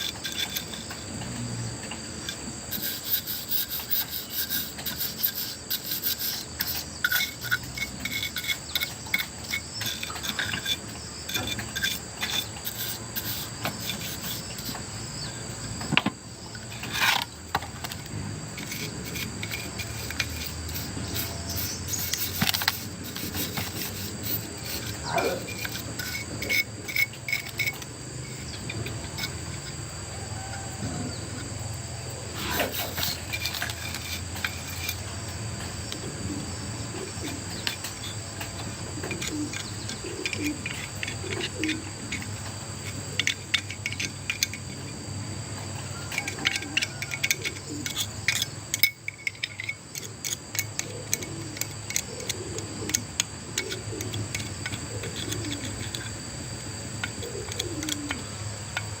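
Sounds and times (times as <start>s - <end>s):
scraping on hard surface: 0.0s - 29.8s, 32.3s - 36.1s
crickets chirping: 0.0s - 59.0s.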